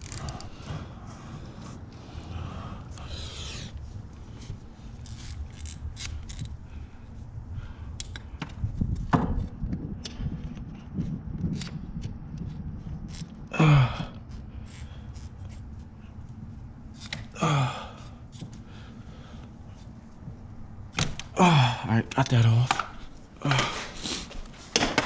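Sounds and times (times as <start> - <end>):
screwdriver clicks and scrapes: 4.4 - 6.6, 10.0 - 13.3
strained grunts: 13.4 - 15.1, 17.2 - 19.4, 21.3 - 22.0.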